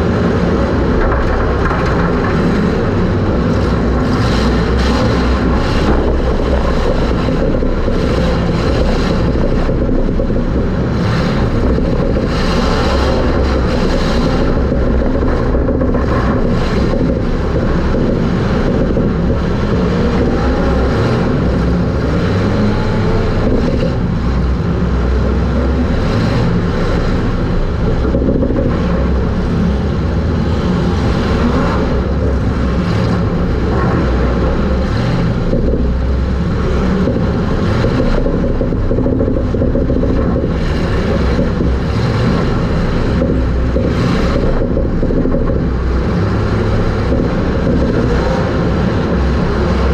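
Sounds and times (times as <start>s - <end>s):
race car engine drone: 0.0s - 49.9s.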